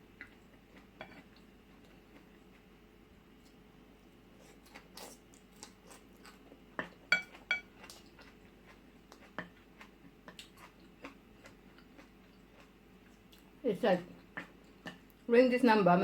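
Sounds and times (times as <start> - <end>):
soft clicks and taps of eating: 5.3 - 13.5, 14.2 - 15.2.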